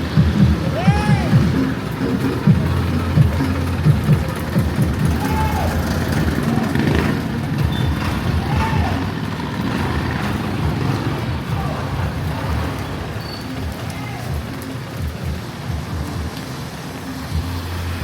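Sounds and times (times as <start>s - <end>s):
vehicle engines rumbling: 0.0s - 18.0s.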